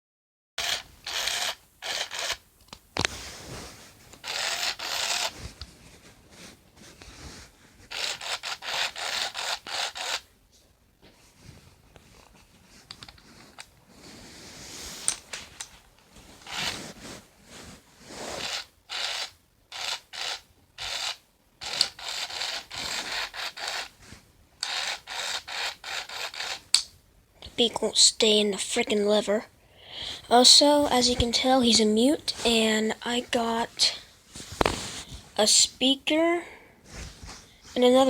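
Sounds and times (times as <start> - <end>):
scratchy rubbing of toy: 0.6 - 2.4, 3.0 - 10.3, 11.2 - 15.6, 16.2 - 26.9, 30.6 - 35.7.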